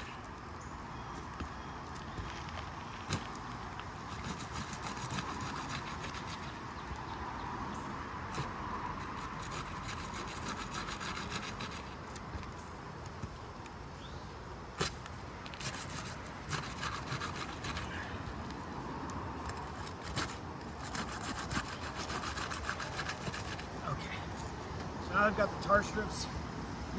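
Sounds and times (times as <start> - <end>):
shingle seal crackling: 0.0 - 7.6, 14.8 - 25.0
pry bar scraping under shingles: 0.0 - 14.2, 14.8 - 26.1.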